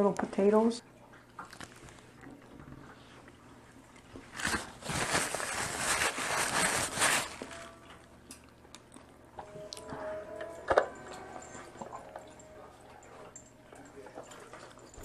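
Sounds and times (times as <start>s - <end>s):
crab shell cracking and crunching: 1.4s - 2.0s.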